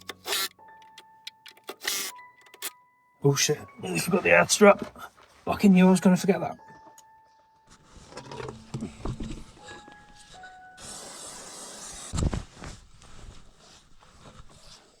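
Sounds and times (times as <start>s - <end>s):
quiet knocks: 7.6s - 10.0s
hiss: 10.8s - 12.2s.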